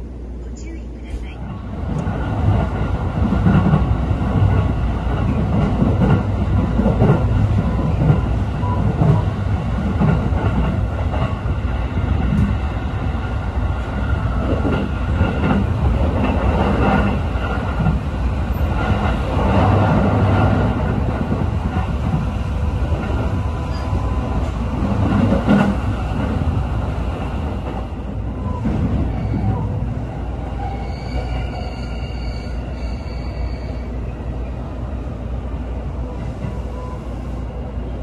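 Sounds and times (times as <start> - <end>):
train wheels rumbling on rail: 1.0 - 38.0.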